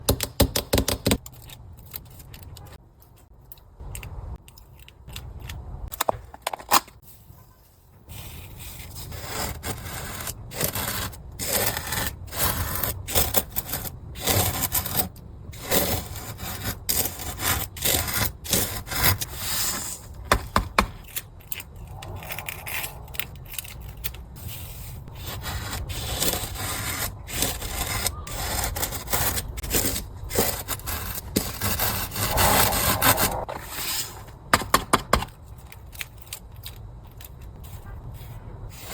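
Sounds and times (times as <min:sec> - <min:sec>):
fingers scraping sand on a board: 0:08.2 - 0:20.0, 0:24.6 - 0:33.4.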